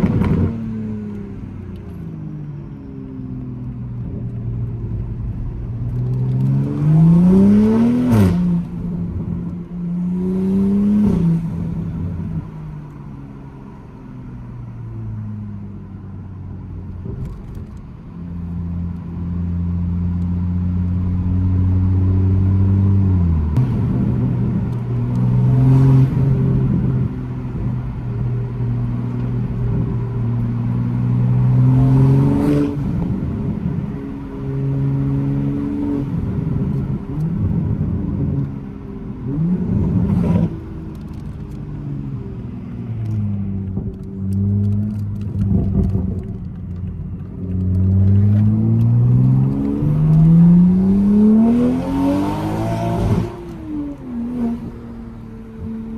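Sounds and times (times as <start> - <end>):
loud car engine revving: 6.3 - 8.9, 21.1 - 38.4, 47.6 - 55.9.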